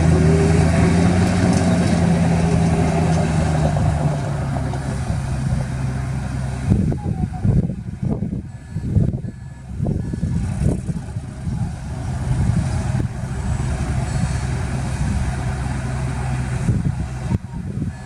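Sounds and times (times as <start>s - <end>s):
heavy diesel engine running: 0.0s - 18.0s
reversing alarm beeping: 8.5s - 10.5s, 12.8s - 16.6s.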